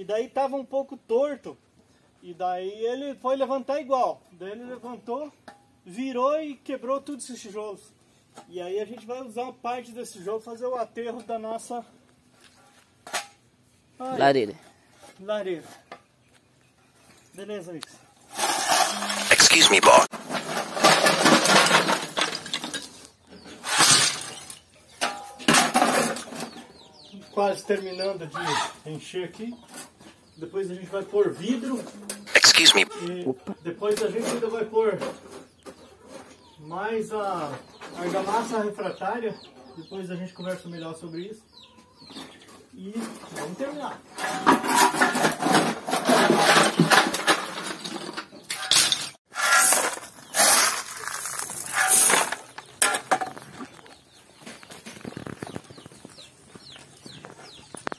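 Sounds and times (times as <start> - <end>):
brick pieces clattering: 20.2 - 23.1, 44.6 - 53.2
broken brick clattering: 20.4 - 23.0.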